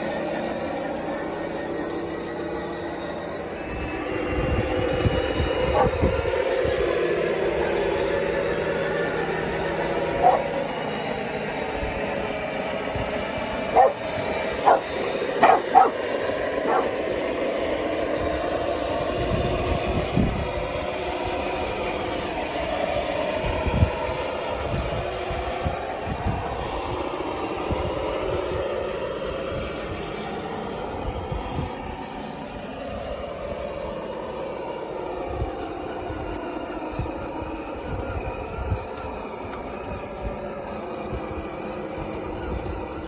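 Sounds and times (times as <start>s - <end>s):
toy bulldozer motors running: 0.0s - 43.0s
dog barking: 5.7s - 6.0s, 10.2s - 10.6s, 13.7s - 17.0s.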